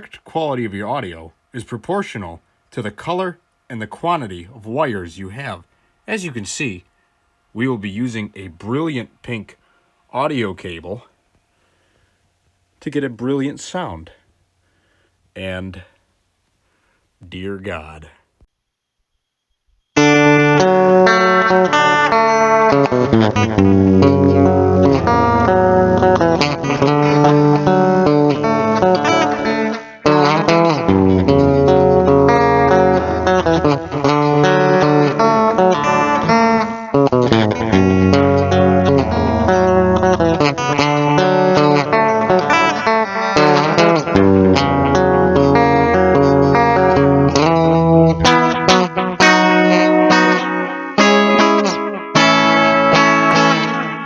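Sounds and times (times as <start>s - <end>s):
guitar music: 20.0s - 54.0s
low bass notes: 23.2s - 28.0s, 30.9s - 36.4s, 37.1s - 42.5s, 44.0s - 48.4s.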